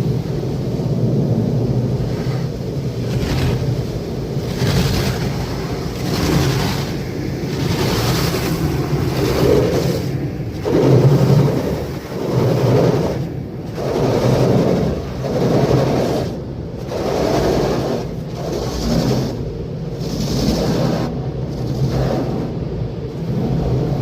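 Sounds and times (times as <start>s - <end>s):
car wash rumble and spraying: 0.0s - 24.0s.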